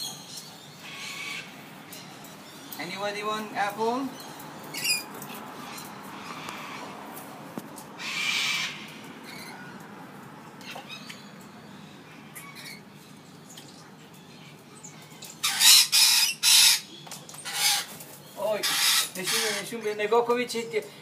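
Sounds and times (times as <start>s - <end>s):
bird squawking harshly: 8.0s - 9.5s, 15.4s - 17.9s, 18.5s - 19.8s.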